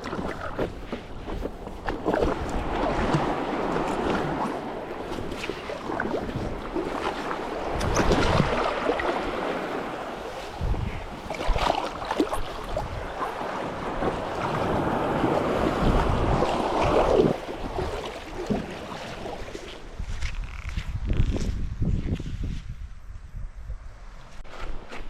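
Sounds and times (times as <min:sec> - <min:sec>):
sea water sloshing and splashing: 0:00.0 - 0:20.2
wind on microphone: 0:00.0 - 0:25.0.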